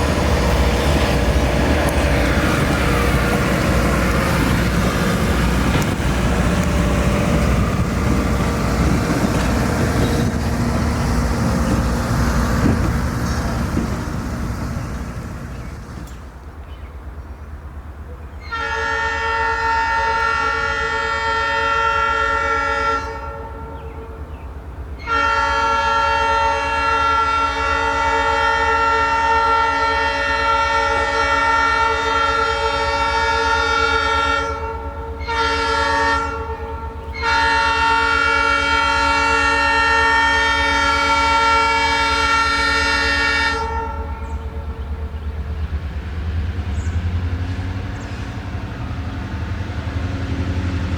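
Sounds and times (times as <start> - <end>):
locomotive air horn blasts: 18.4 - 24.2, 25.0 - 44.7.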